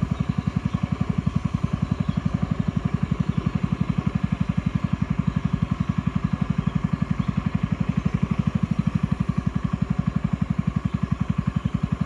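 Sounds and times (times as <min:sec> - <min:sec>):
boat engine chugging: 0:00.0 - 0:12.0.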